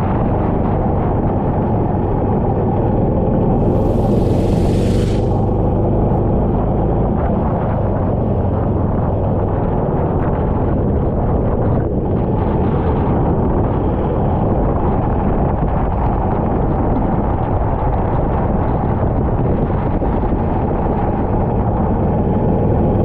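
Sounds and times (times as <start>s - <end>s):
wind buffeting microphone: 0.0s - 23.0s
kart engine running: 2.2s - 9.9s.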